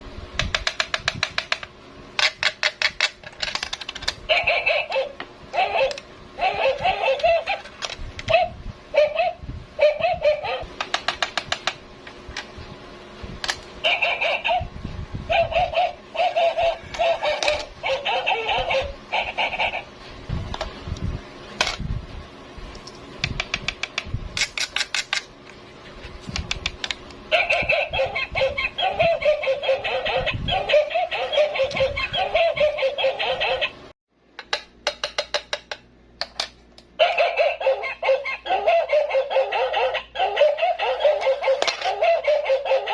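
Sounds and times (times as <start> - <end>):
toy squeaky warbling calls: 4.3 - 7.7, 8.3 - 10.7, 13.8 - 14.6, 15.3 - 19.9, 27.3 - 33.8, 37.0 - 42.9.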